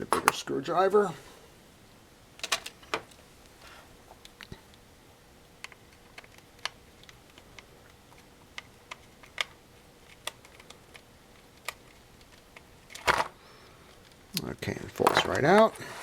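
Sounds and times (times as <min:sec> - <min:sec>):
plastic parts handled: 0:05.6 - 0:14.2, 0:14.9 - 0:16.0.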